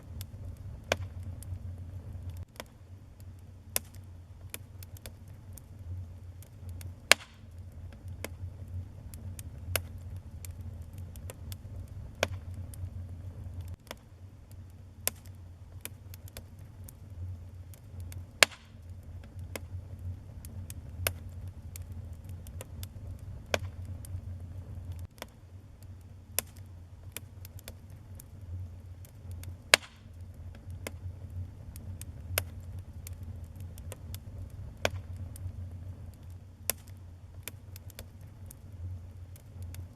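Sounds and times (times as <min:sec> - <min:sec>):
sharp pops of fire: 0:00.0 - 0:39.9
wood fire crackling: 0:00.0 - 0:39.9.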